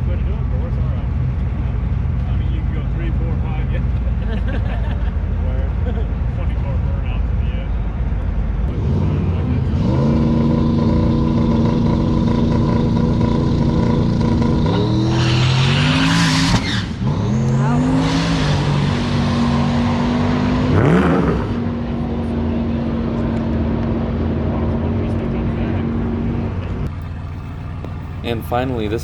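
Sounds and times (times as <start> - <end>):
racing car engine revving: 0.0 - 29.0.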